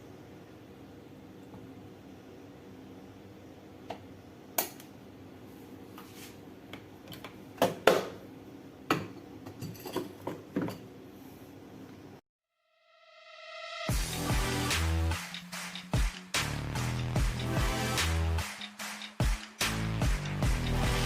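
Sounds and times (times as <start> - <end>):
kitchenware clinking and knocking: 8.9 - 11.0.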